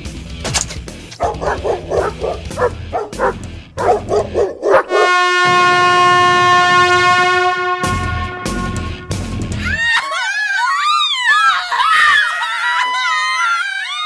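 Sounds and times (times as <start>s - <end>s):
dog-like yelps of pain: 9.6s - 14.0s.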